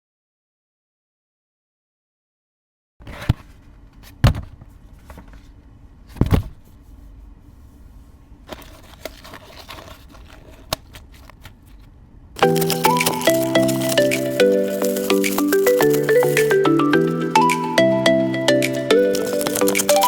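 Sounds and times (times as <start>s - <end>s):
light clicks and crinkles: 8.5s - 16.6s, 19.1s - 20.0s
packaging knocks and rustles: 8.5s - 17.1s, 18.8s - 20.0s
music: 12.4s - 20.0s.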